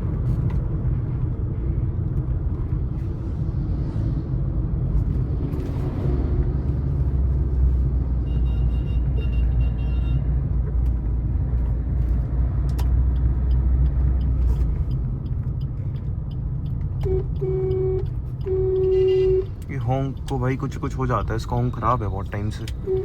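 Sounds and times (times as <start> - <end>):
road noise: 0.0 - 23.0
car horn: 8.2 - 10.3, 17.0 - 19.6.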